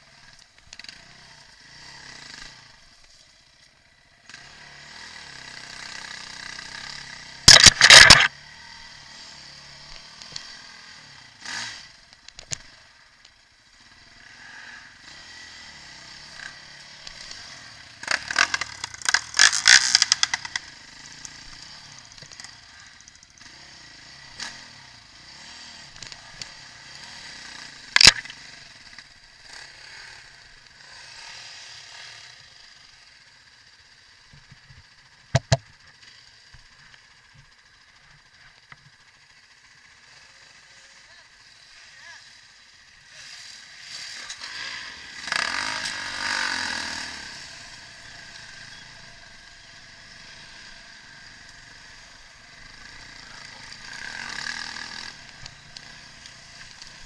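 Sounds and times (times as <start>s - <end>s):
distant dirt bike engines buzzing: 0.0s - 57.0s
loud distorted bursts: 7.4s - 8.3s
sharp crack: 7.4s - 8.3s, 18.1s - 21.4s, 27.9s - 28.5s.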